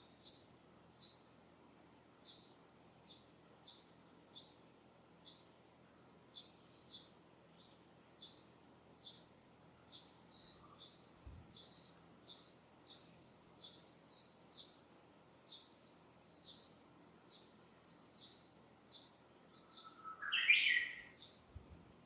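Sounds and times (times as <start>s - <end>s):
distant bird chirping: 9.9s - 22.0s.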